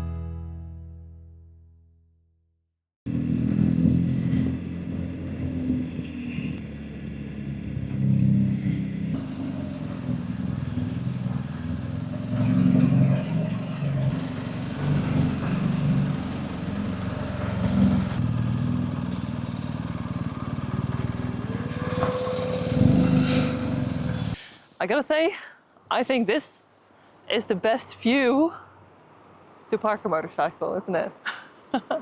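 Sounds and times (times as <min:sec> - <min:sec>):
motorcycle engine: 0:03.1 - 0:24.4
rushing noise: 0:21.4 - 0:24.4.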